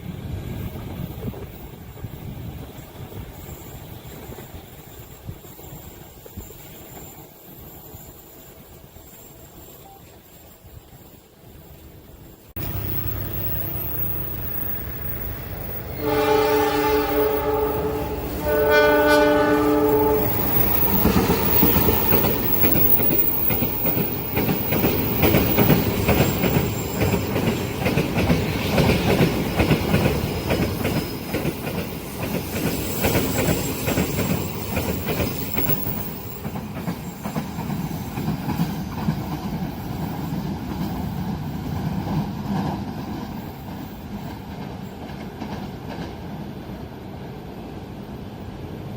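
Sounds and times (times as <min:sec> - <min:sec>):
train passing with rumble: 0:00.0 - 0:48.9
train horn blasts: 0:15.9 - 0:22.4.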